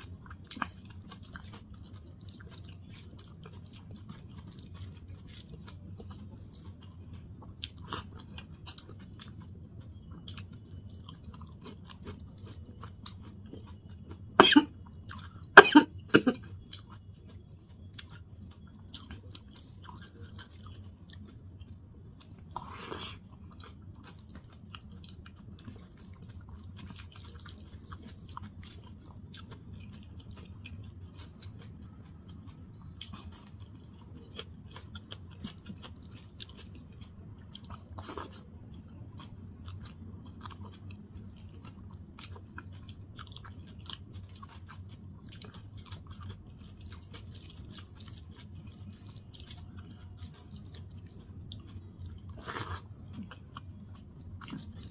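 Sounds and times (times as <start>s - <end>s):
person chewing and squishing: 0.0s - 54.9s
person coughing: 14.4s - 14.8s, 15.5s - 16.4s.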